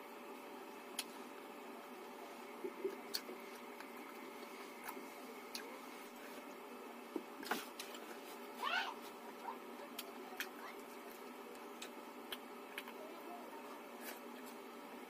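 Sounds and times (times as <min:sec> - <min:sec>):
faint hum: 0:00.0 - 0:15.0
sharp clicks while chewing: 0:10.0 - 0:13.0.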